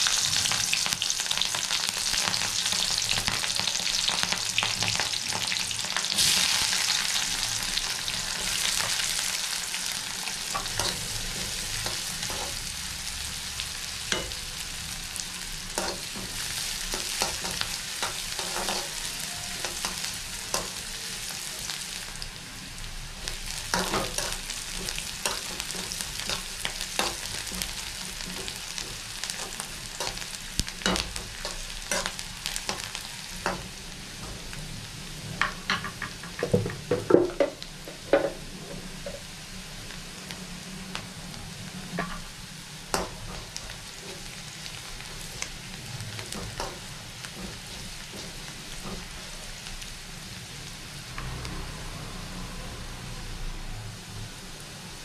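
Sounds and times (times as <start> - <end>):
onions sizzling in hot oil: 0.0 - 55.0
spatula scraping a pan: 15.8 - 20.8.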